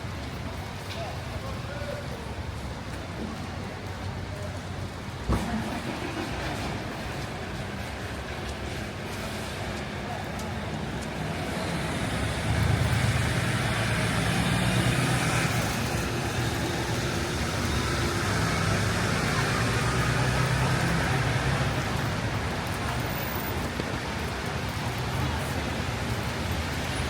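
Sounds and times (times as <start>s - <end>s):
rain hiss on wet road: 0.0s - 27.0s
vehicle engine running: 11.0s - 23.3s.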